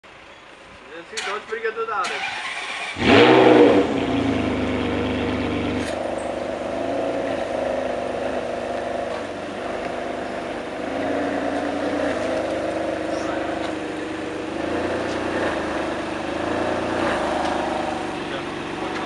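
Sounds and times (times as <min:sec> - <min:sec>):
car engine starting and idling: 0:00.1 - 0:19.0.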